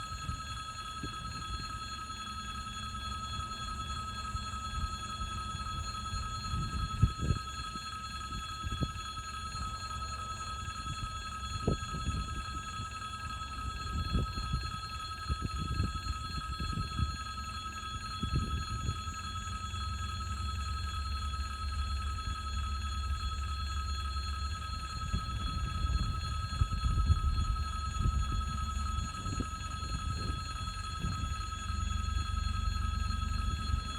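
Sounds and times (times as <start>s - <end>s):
high-pitched ringing tone: 0.0s - 33.9s.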